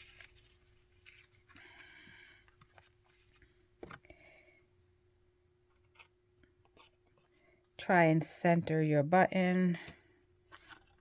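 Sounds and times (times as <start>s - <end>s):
thread rustling through cardboard: 0.0s - 4.2s, 9.7s - 11.0s.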